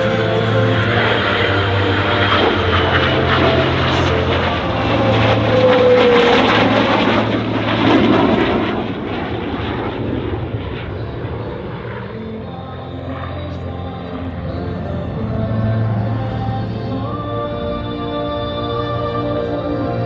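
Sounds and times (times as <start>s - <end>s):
military plane flying past: 0.0s - 20.0s.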